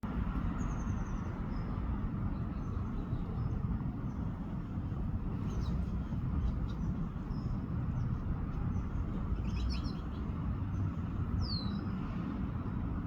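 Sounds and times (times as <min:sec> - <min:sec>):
sparrows chirping: 0:05.3 - 0:11.9.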